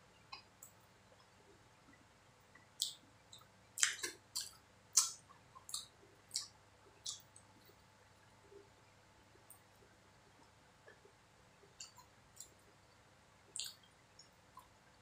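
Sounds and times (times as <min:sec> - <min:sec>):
wet mouth smacks from chewing: 0:13.6 - 0:13.8.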